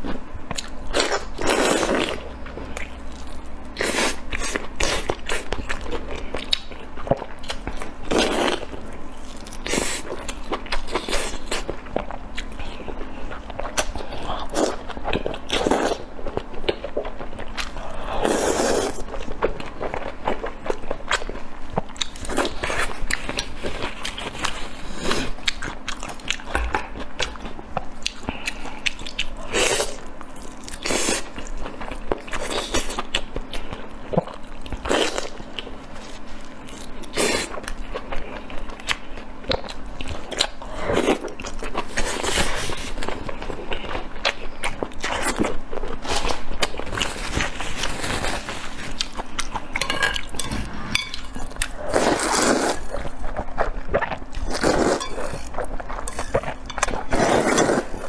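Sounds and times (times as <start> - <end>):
person chewing and biting: 47.8 - 58.0.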